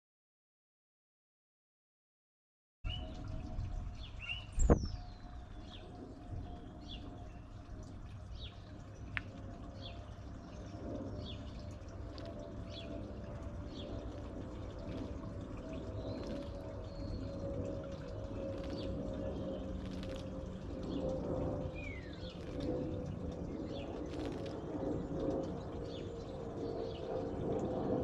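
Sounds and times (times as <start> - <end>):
low steady hum: 2.9 - 28.0
small birds chirping: 8.3 - 17.5, 18.3 - 24.7.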